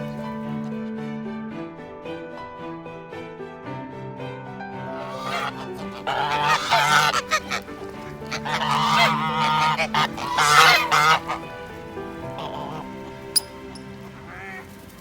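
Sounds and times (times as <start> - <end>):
background music: 0.0 - 15.0
geese honking: 4.9 - 15.0.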